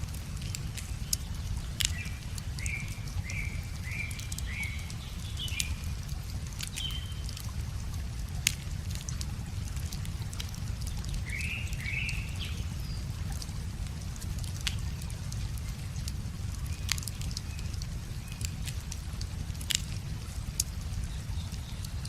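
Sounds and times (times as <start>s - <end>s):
wood fire crackling and popping: 0.0s - 22.0s
bird chirping: 0.4s - 6.0s, 6.7s - 7.3s, 10.8s - 13.1s.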